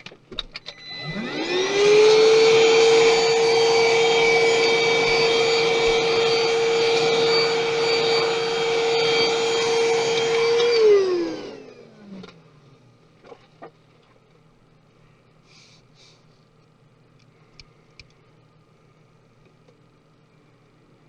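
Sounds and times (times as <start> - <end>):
small electric motor whining: 0.7 - 12.3.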